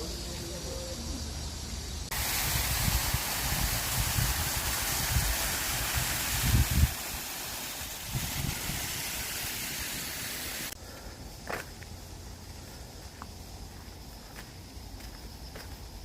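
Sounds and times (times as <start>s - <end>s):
wind buffeting microphone: 2.1s - 9.7s.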